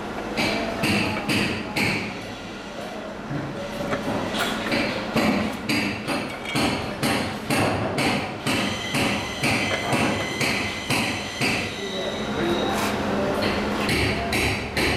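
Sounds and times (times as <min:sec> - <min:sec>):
hammering on metal: 0:00.4 - 0:02.1, 0:04.7 - 0:11.7, 0:13.9 - 0:14.9.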